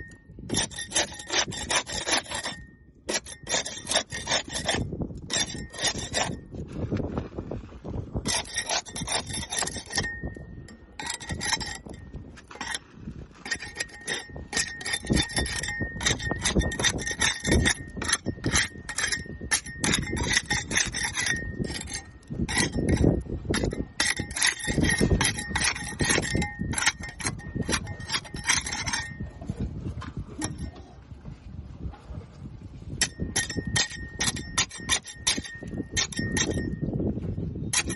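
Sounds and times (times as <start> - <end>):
scraping barnacles off boat hull: 0.0 - 31.0, 31.8 - 37.9
steady ringing tone: 8.3 - 12.8, 13.4 - 29.4, 33.0 - 37.0.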